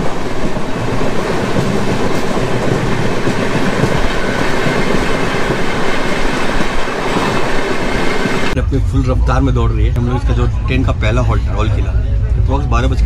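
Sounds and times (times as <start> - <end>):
rails squealing: 0.0 - 8.6
train wheels rumbling on track: 0.0 - 11.3.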